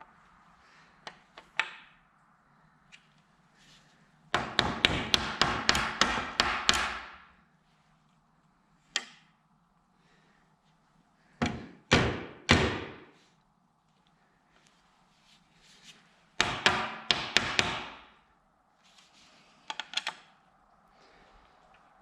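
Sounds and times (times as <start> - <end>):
hammer strikes: 4.4 - 7.3, 16.4 - 18.1.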